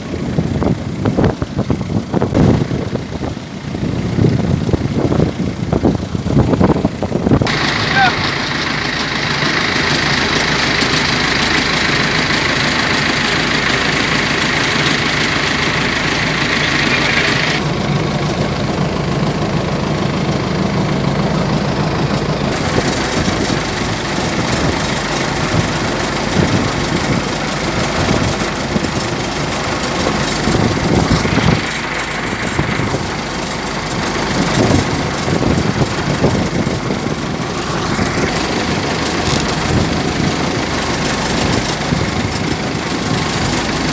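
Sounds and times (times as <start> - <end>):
boat engine running: 0.0 - 43.9
loud steady hiss: 7.5 - 18.7.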